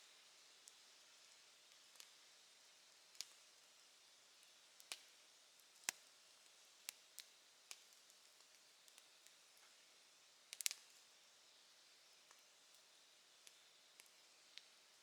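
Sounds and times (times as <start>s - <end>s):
campfire crackling and popping: 10.5s - 10.8s.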